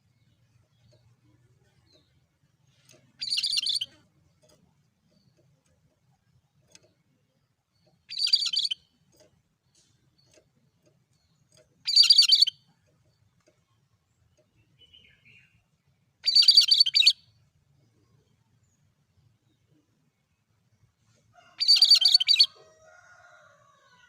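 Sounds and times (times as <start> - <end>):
bird high chattering call: 3.2 - 4.1, 8.1 - 8.9, 11.8 - 12.6, 16.2 - 17.2, 21.6 - 22.6.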